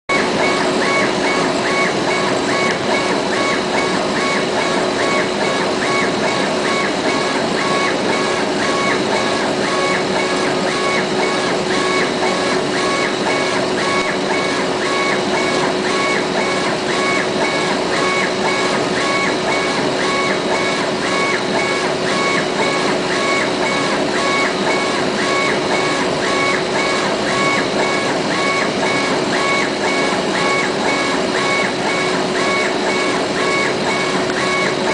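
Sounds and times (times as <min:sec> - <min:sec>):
motors whining: 0:00.1 - 0:34.9.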